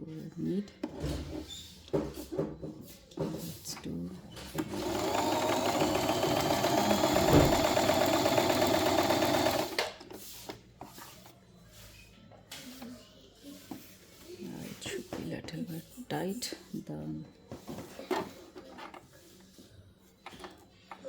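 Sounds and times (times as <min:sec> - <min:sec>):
electric sewing machine running: 0:04.6 - 0:09.8
faint handling sounds: 0:09.4 - 0:21.0.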